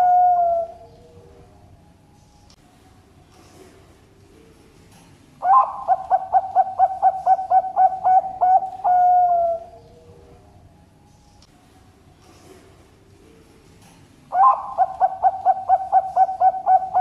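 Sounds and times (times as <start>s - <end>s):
dove cooing: 0.0s - 1.4s, 5.4s - 10.4s, 14.3s - 17.0s.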